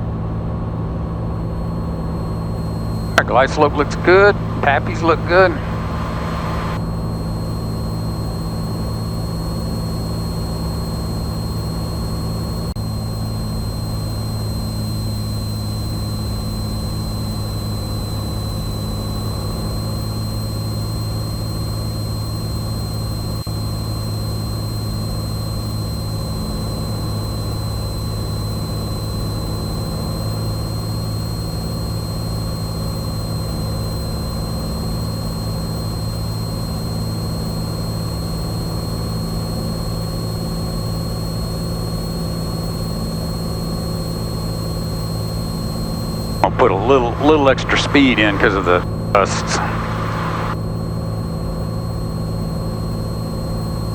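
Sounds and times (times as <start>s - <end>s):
high-pitched whine: 3.1s - 7.0s, 46.4s - 50.6s.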